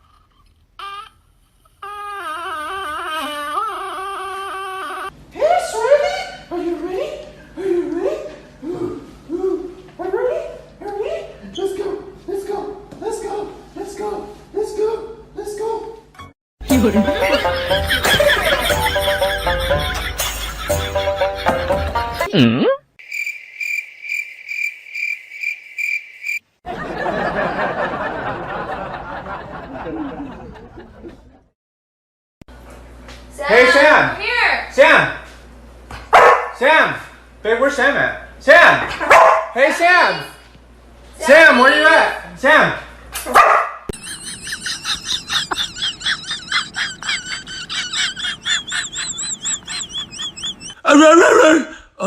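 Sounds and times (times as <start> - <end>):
cricket chirping: 23.0 - 26.4
high warbling chirps: 48.0 - 50.8.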